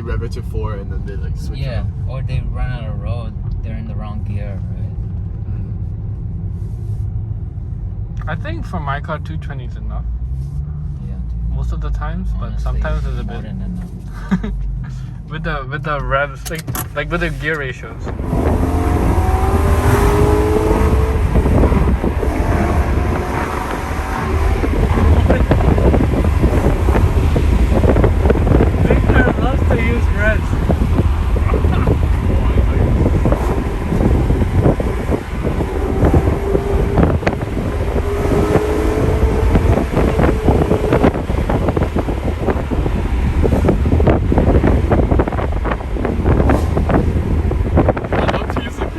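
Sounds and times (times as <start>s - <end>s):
car engine accelerating: 0.0s - 48.9s
road and wind rumble: 0.0s - 48.9s
sharp exhaust cracks: 16.3s - 48.9s.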